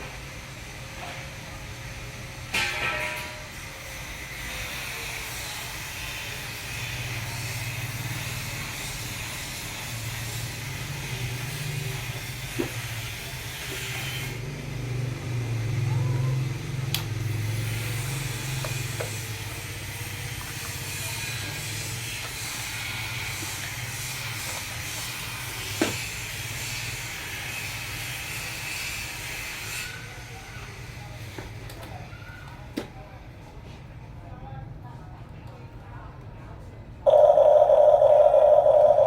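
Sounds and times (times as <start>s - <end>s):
hiss: 17.3s - 31.1s.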